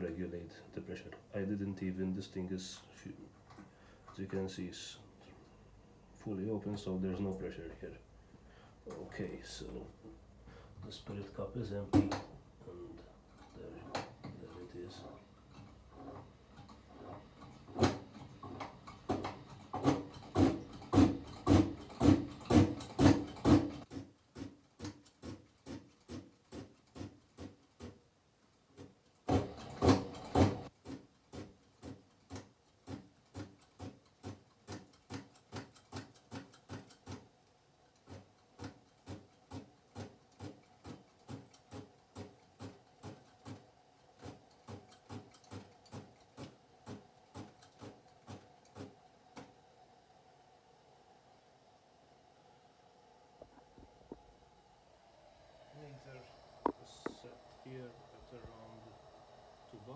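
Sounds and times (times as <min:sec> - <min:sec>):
lamp hand pump strokes: 0:13.4 - 0:23.9, 0:28.8 - 0:30.7.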